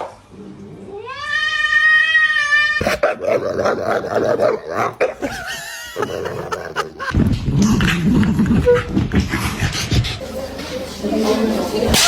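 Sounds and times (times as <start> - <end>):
cat meowing: 0.9 - 2.8.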